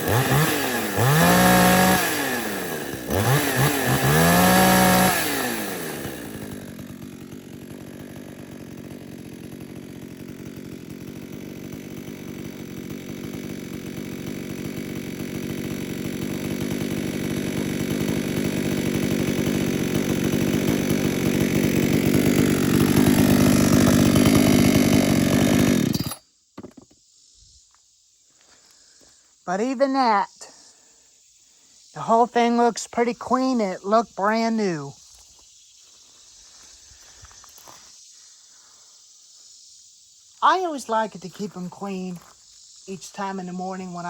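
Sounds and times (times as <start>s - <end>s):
chainsaw revving and idling: 0.0s - 26.7s, 32.0s - 35.2s, 40.4s - 44.0s.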